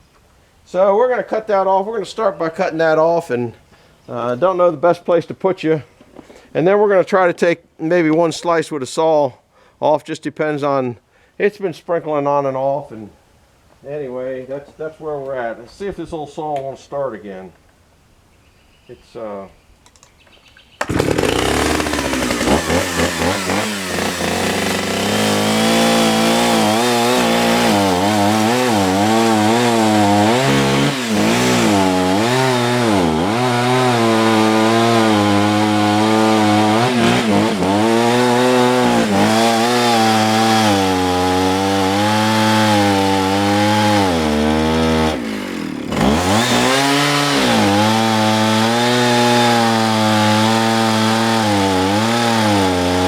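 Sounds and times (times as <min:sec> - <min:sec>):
chainsaw cutting into log: 0:20.8 - 0:53.0.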